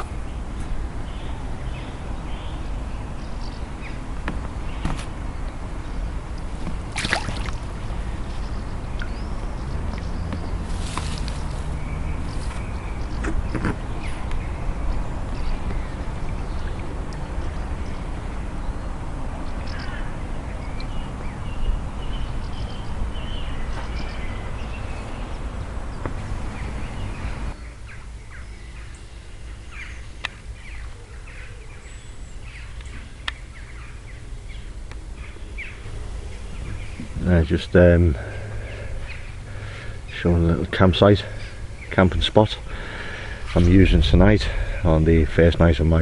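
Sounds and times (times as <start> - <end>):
birds calling: 0.0 - 46.0
outdoor rumble and hiss: 0.0 - 46.0.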